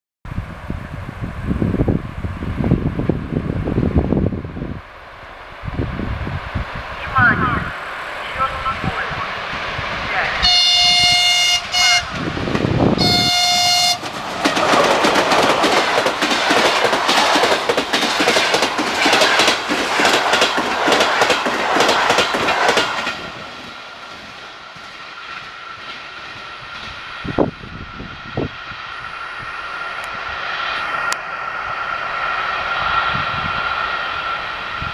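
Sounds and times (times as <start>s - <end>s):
train rumble: 0.3s - 34.9s
locomotive horn: 10.3s - 12.2s, 13.0s - 14.1s
train wheels clattering: 12.1s - 27.0s.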